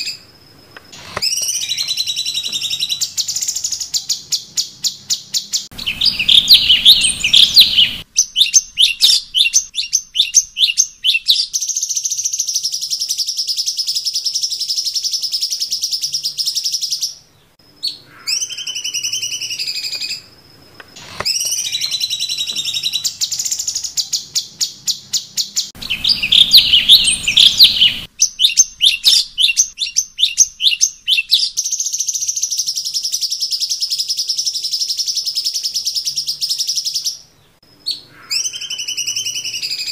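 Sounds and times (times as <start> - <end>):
songbird chattering and trilling: 1.0 - 20.3, 20.9 - 39.9.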